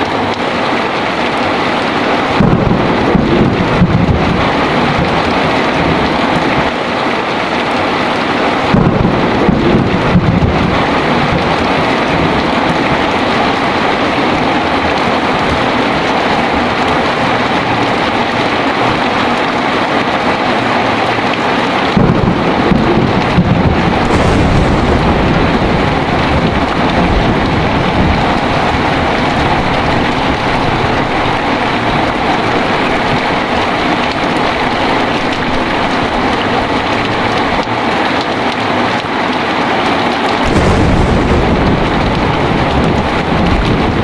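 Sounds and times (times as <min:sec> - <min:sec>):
heavy rain: 0:00.0 - 0:44.0
thunder rumbling: 0:01.2 - 0:38.2, 0:40.4 - 0:44.0.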